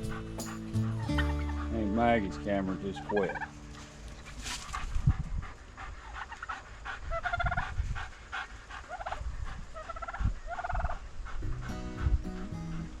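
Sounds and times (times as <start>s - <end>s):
turkeys gobbling: 0.0s - 4.4s, 6.1s - 7.6s, 8.9s - 9.2s, 9.8s - 11.0s.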